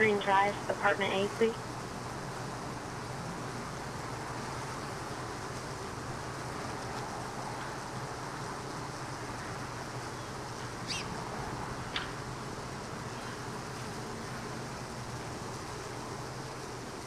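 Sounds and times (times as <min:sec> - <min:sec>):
honeybees humming: 0:00.0 - 0:06.7, 0:08.0 - 0:17.0
short bird chirps: 0:10.8 - 0:11.1.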